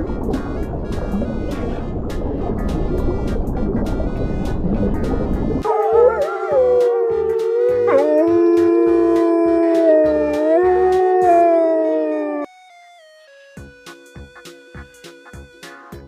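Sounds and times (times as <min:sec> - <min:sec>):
music with steady beat: 0:00.0 - 0:11.1, 0:13.6 - 0:16.0
dog howling: 0:05.6 - 0:12.5.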